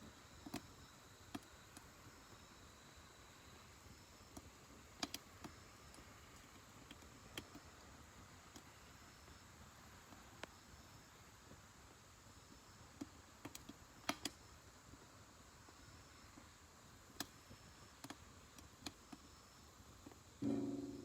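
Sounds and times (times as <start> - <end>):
wood fire crackling: 0.0 - 21.0
fire pops and snaps: 4.3 - 7.8, 12.6 - 15.0, 16.4 - 20.3.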